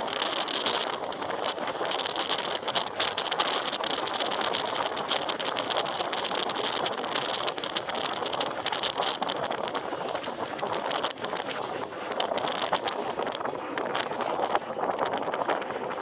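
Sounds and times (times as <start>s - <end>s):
bike road noise: 0.0s - 9.4s
short crackles and rattles: 0.0s - 16.0s
wind rushing over microphone: 0.0s - 16.0s.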